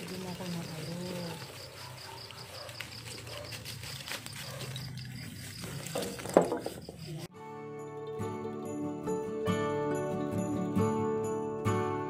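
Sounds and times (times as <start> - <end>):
insects chirping: 0.0 - 7.3.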